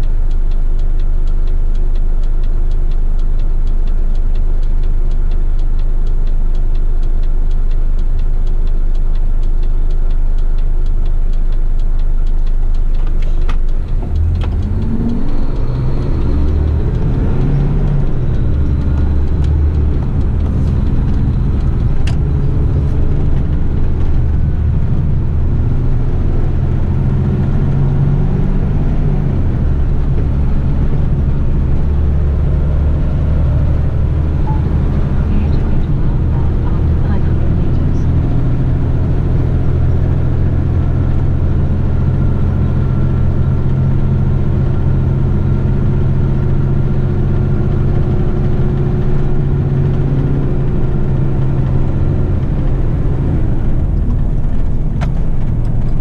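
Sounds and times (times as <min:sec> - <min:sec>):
truck diesel engine idling and revving: 0:00.0 - 0:56.0.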